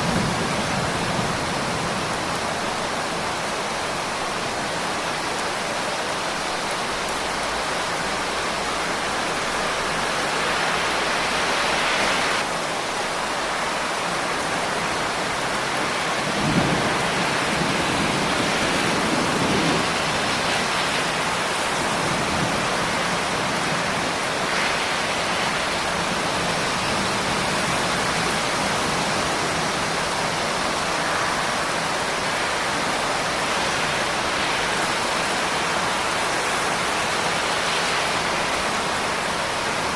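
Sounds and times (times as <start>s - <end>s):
steady rain hissing: 0.0s - 39.9s
thunder crack and rumble: 16.2s - 24.8s.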